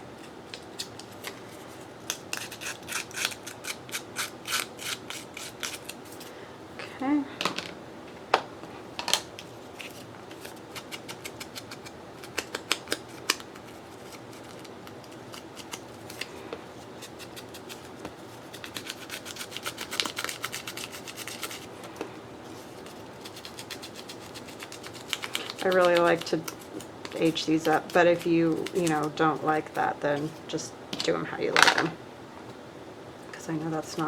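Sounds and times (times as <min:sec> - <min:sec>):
scissors snipping paper: 0:02.0 - 0:06.3, 0:09.8 - 0:21.7, 0:22.7 - 0:30.3
scratchy rubbing on paper: 0:22.5 - 0:29.5.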